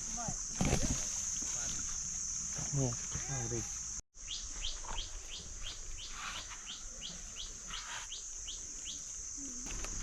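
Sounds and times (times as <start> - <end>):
bird chirping: 4.2 - 9.1.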